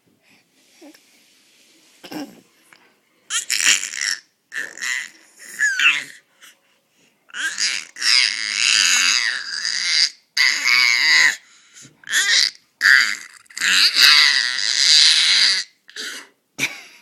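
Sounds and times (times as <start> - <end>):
faint hiss: 0.0 - 3.2
baby shrieking: 3.3 - 6.2, 7.3 - 11.4, 12.1 - 15.7.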